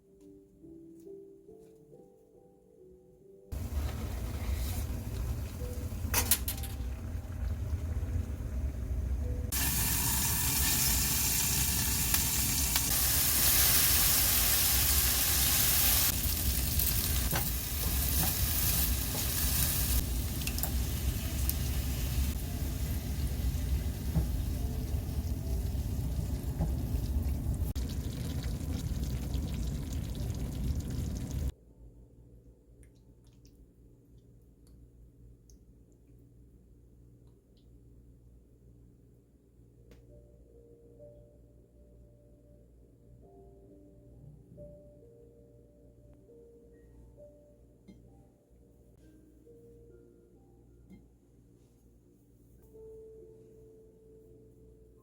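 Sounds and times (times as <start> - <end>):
low rumble: 3.5 - 13.0, 16.0 - 31.5
food sizzling in a pan: 9.5 - 31.5.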